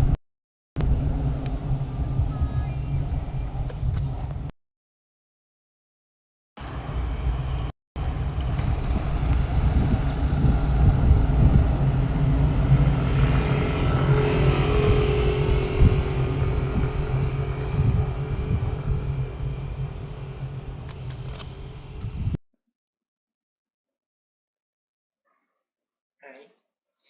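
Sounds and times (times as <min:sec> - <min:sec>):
vehicle engine rumble: 0:00.8 - 0:04.5, 0:06.6 - 0:22.4.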